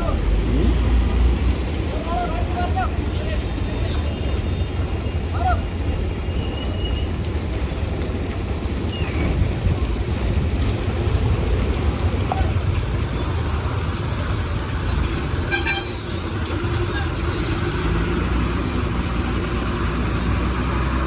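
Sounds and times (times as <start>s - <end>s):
heavy truck engine rumbling: 0.0s - 21.0s
truck horn toot: 15.4s - 16.4s.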